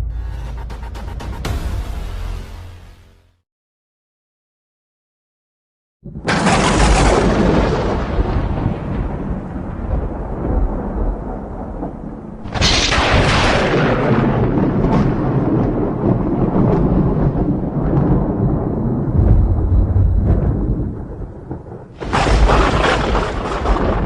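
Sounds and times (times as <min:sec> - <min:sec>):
lightning strike crack: 0:06.0 - 0:24.0
thunder rumbling: 0:06.0 - 0:24.0.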